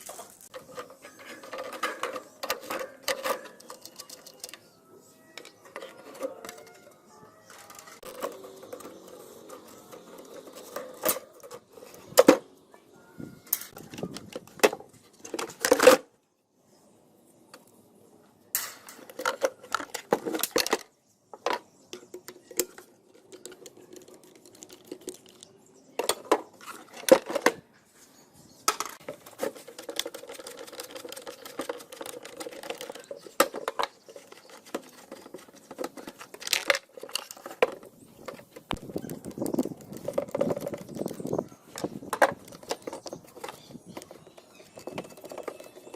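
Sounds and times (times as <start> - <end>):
metal parts clinking and knocking: 0.5 - 4.7, 28.7 - 45.9.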